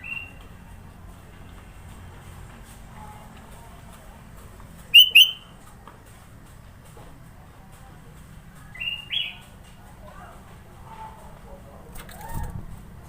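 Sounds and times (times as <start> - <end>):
bulbul whistled calls: 4.9 - 5.5.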